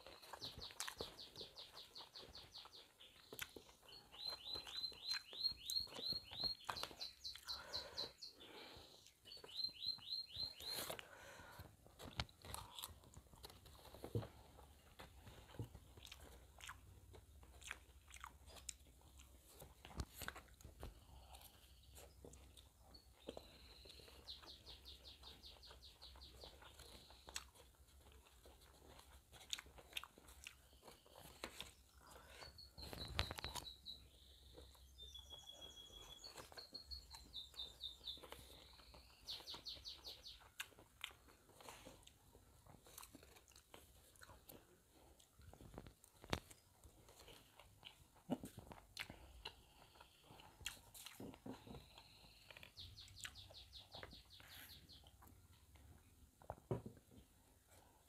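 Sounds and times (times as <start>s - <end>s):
bird chirping trills: 0.0s - 8.6s, 9.2s - 10.9s, 32.4s - 40.5s
chewing and crunching food: 0.0s - 58.0s.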